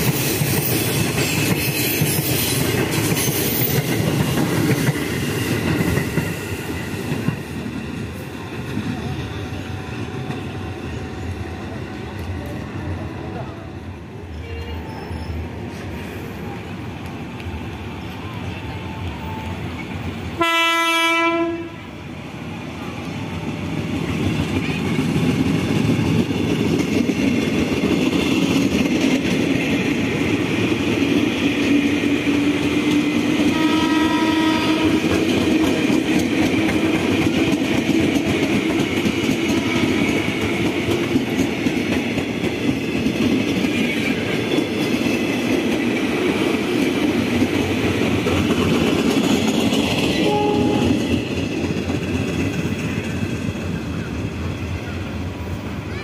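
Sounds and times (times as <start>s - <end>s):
train rumble and wheel clatter: 0.0s - 56.0s
train horn: 20.4s - 22.0s, 33.5s - 36.0s, 39.5s - 40.2s, 50.2s - 51.2s.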